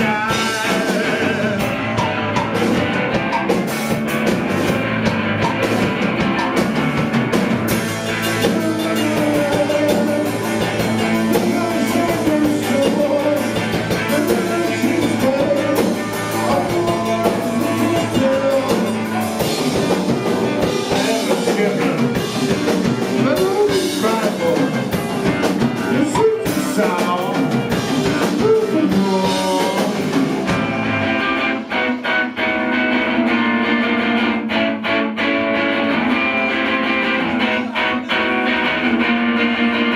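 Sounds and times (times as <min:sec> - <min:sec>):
person singing: 0:00.0 - 0:02.3, 0:08.1 - 0:30.5, 0:37.2 - 0:39.9
drum kit: 0:00.0 - 0:39.9
electric guitar: 0:00.0 - 0:39.9.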